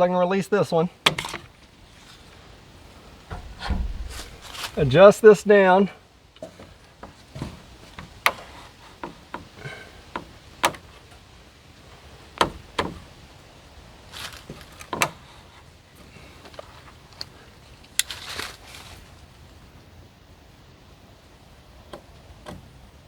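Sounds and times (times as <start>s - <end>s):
wooden and metal parts knocking: 3.3s - 4.9s, 6.4s - 11.3s, 12.4s - 13.1s.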